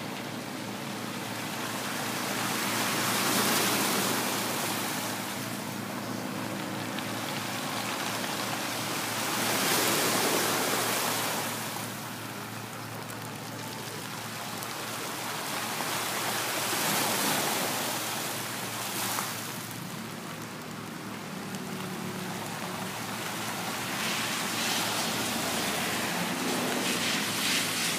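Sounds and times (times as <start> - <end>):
sea waves breaking on shore: 0.0 - 27.9.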